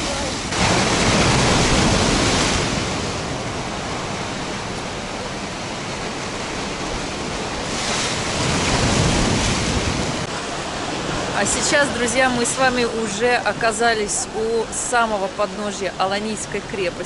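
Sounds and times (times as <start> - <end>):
wind buffeting microphone: 0.0 - 13.4
surf breaking over rocks: 0.0 - 14.2.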